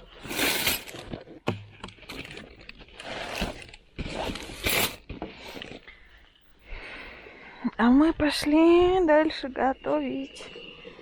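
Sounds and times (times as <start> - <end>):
bag rustling: 0.0 - 1.1, 2.1 - 5.8
zipper being pulled: 0.2 - 1.0, 3.0 - 5.8.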